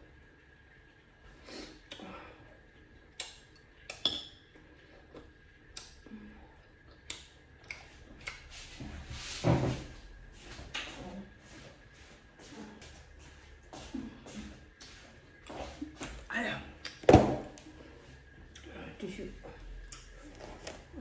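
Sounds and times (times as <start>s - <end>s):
chewing with wet smacks: 1.8s - 8.8s, 19.5s - 21.0s.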